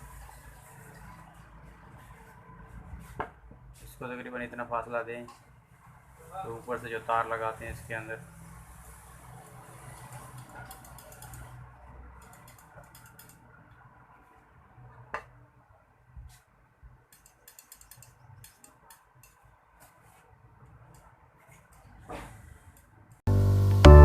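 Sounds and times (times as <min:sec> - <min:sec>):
small metal parts clicking: 0:17.1 - 0:19.4.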